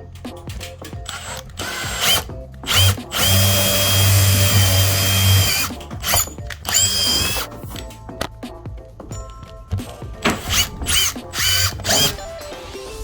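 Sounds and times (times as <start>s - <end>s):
power drill running: 1.0s - 7.5s, 10.4s - 12.3s.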